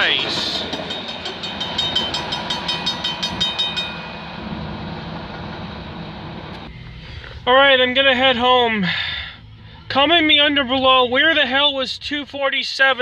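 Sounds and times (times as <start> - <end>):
train wheels clicking: 0.0 - 6.7
train rumble: 0.0 - 13.0.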